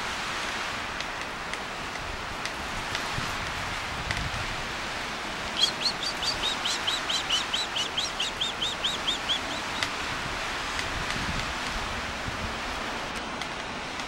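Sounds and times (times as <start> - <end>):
steady outdoor hiss: 0.0 - 14.0
small bird calling: 5.5 - 10.0.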